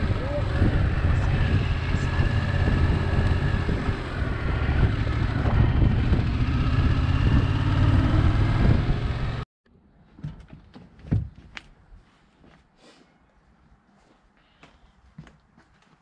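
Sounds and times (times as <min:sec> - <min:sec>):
motorcycle engine rumble: 0:00.0 - 0:09.4.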